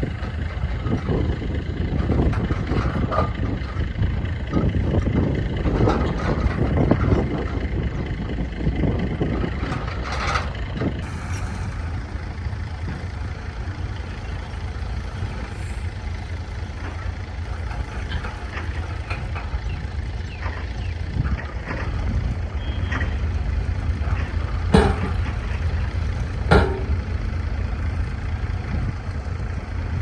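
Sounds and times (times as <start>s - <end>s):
heavy diesel machinery rumbling: 0.0s - 30.0s
clattering knocks: 24.1s - 25.8s, 26.4s - 27.2s.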